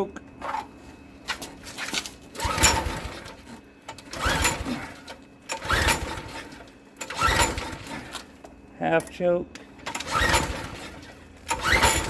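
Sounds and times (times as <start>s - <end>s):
engine recoil starter pulls: 1.8s - 8.4s, 9.8s - 12.0s.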